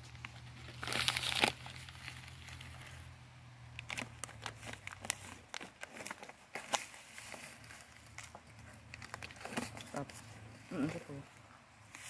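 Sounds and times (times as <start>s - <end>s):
food packaging crinkling: 0.0s - 3.0s, 3.7s - 10.3s.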